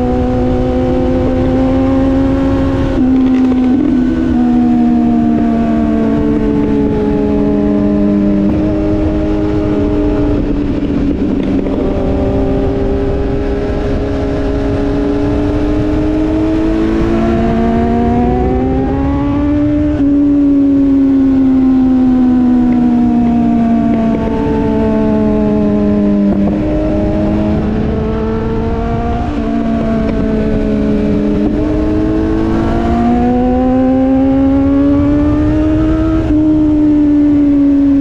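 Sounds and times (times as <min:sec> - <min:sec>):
motorcycle engine running: 0:00.0 - 0:38.0
wind noise: 0:00.0 - 0:38.0.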